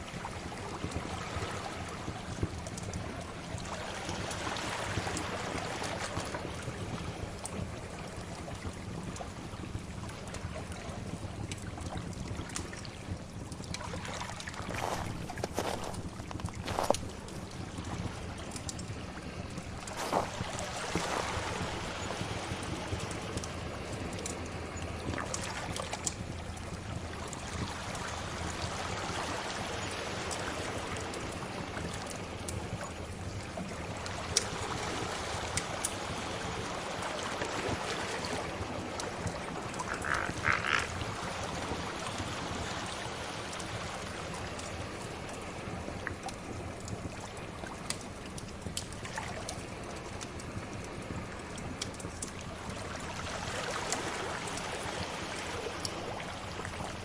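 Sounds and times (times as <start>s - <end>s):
fire crackling: 0.1s - 28.7s, 38.1s - 53.2s
sea waves washing in: 13.8s - 32.8s, 33.5s - 47.9s, 52.4s - 57.0s.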